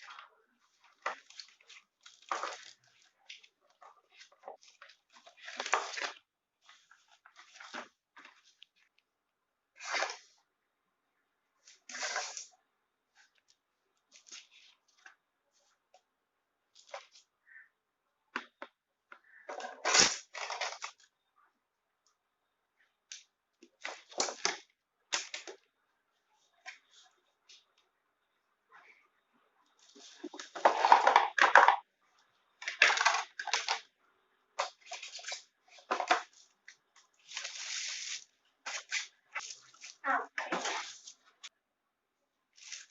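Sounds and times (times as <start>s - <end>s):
packaging rustling and crinkling: 0.0s - 9.0s, 37.2s - 41.4s, 42.6s - 42.9s.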